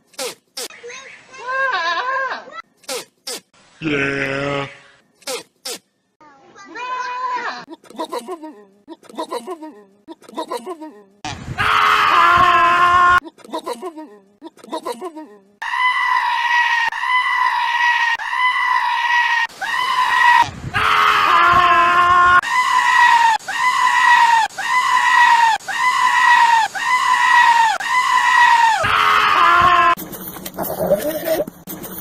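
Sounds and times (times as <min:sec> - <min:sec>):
goat screaming: 0:01.4 - 0:02.6, 0:06.7 - 0:07.7, 0:15.6 - 0:30.0.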